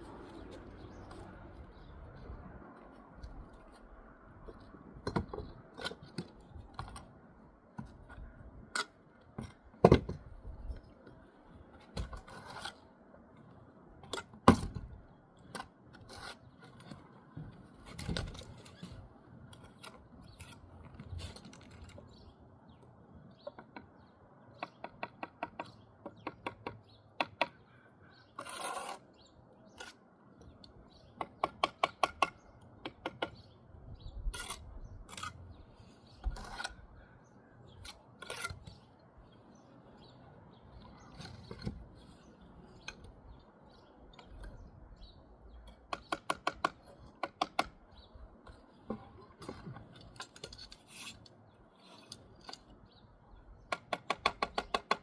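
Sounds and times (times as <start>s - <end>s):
trowel knocking and scraping brick: 5.0s - 7.0s, 31.1s - 33.5s, 36.2s - 36.8s, 53.6s - 55.0s
bricks tapped into mortar: 45.7s - 47.8s, 53.7s - 55.0s.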